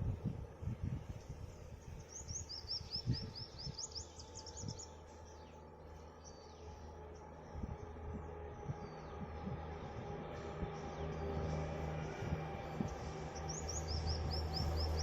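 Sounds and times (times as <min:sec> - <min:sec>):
low rumble: 0:00.0 - 0:15.0
bird chirping: 0:01.9 - 0:06.7, 0:12.8 - 0:15.0.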